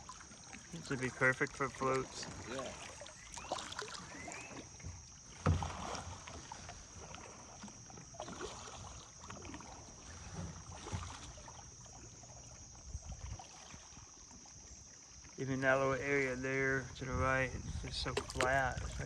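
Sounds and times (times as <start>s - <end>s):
water washing against kayak hull: 0.0s - 15.4s, 17.9s - 19.0s
paddle knocking on boat: 4.8s - 6.0s, 18.0s - 19.0s.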